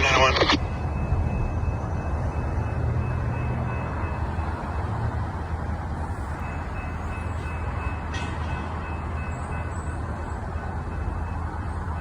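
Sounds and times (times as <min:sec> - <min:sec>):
diesel locomotive engine rumbling: 0:00.0 - 0:12.0.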